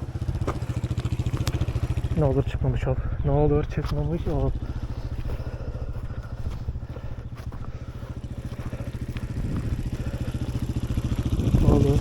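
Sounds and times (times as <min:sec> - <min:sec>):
dirt bike engine idling: 0:00.0 - 0:12.0.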